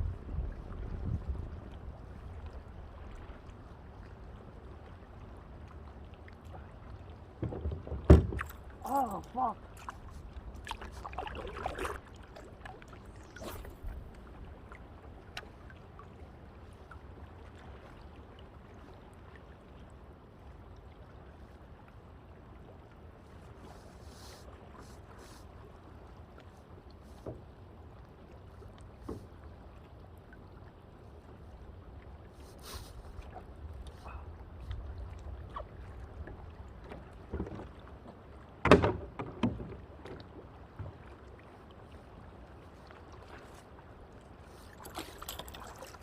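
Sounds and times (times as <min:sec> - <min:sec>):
wind and water rumble: 0:00.0 - 0:46.0.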